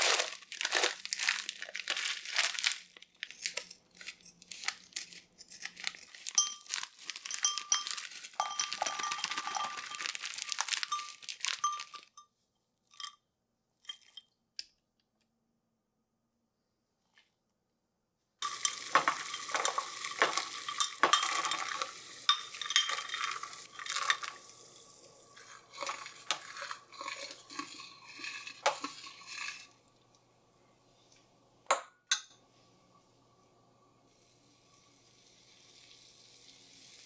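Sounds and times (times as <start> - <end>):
food sizzling in a pan: 18.4 - 30.0, 34.0 - 37.0.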